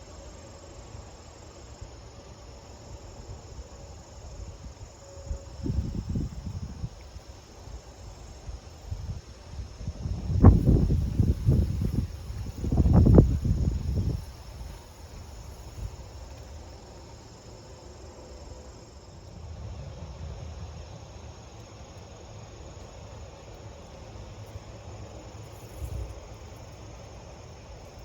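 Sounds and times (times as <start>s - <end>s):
wind buffeting microphone: 5.5s - 7.2s, 8.4s - 16.4s
high insect chirring: 5.6s - 19.2s.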